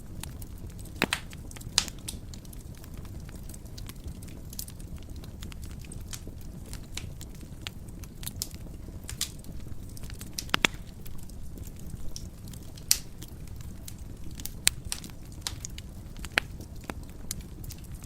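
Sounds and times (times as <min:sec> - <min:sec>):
fire crackles and pops: 0:00.0 - 0:18.0
low rumble of flames: 0:00.0 - 0:18.0.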